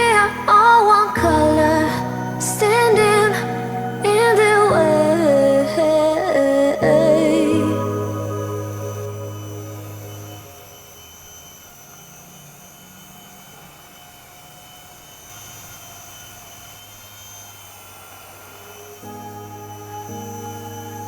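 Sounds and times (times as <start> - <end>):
music: 0.0 - 10.5, 19.0 - 21.0
toy helicopter motor whine: 0.0 - 21.0.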